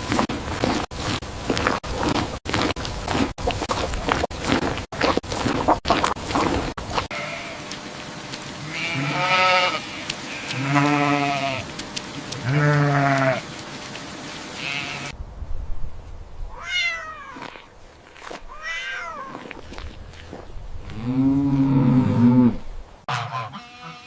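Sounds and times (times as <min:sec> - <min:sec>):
drawn-out animal calls: 0:05.0 - 0:15.1, 0:23.1 - 0:24.0.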